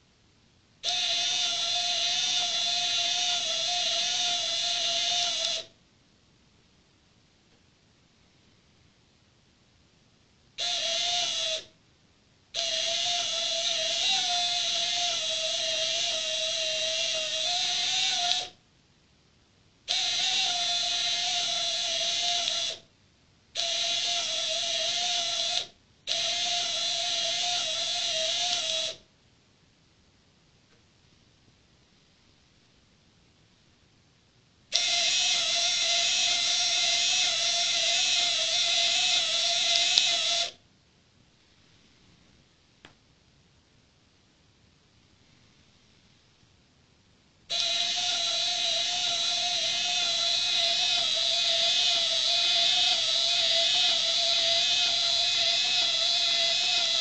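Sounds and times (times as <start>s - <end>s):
small electric motor whine: 0.9s - 5.7s, 12.6s - 18.6s, 19.9s - 22.8s, 23.6s - 29.0s, 34.7s - 40.6s, 47.5s - 57.0s.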